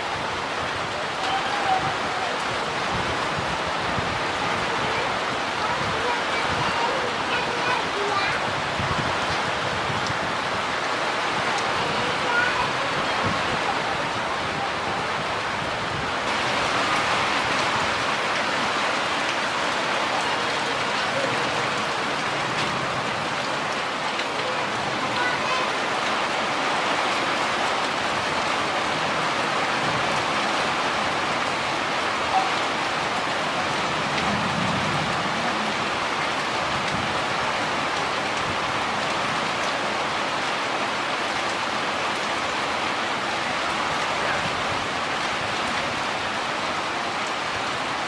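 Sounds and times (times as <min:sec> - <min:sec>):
steady rain hiss: 0:00.0 - 0:48.0.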